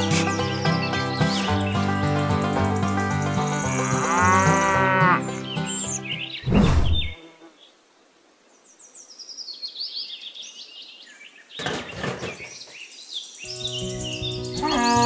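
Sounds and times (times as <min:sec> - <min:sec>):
small birds chirping: 0:00.0 - 0:07.8, 0:08.5 - 0:15.0
faint background hiss: 0:07.2 - 0:11.5.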